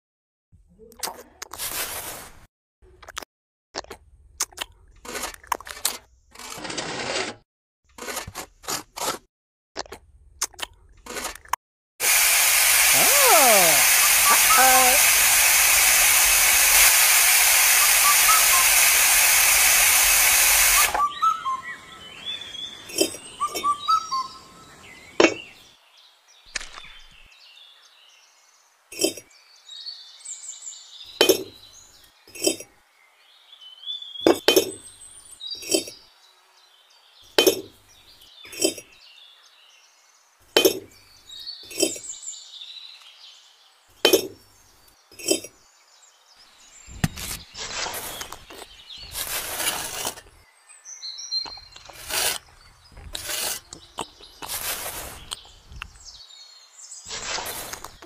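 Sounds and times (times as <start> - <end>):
loud hiss: 12.0 - 21.0.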